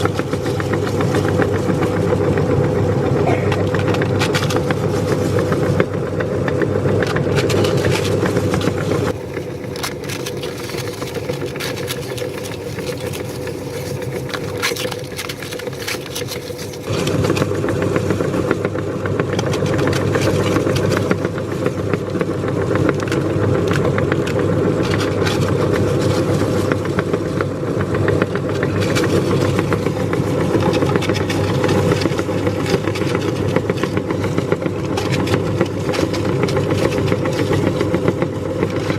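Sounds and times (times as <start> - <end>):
meat grinder motor hum: 0.0 - 38.9
crispy shells crushing clicks: 7.1 - 17.0.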